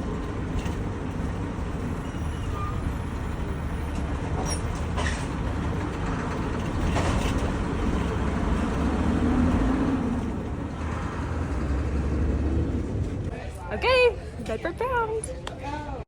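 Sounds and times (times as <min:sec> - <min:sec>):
road vehicle rumble: 0:00.0 - 0:16.0.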